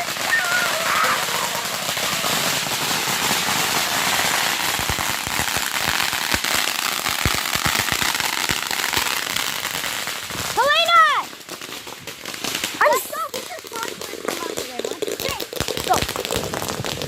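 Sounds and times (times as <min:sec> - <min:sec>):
fireworks crackling: 0:00.0 - 0:17.0
fireworks sharp pops: 0:00.0 - 0:17.0.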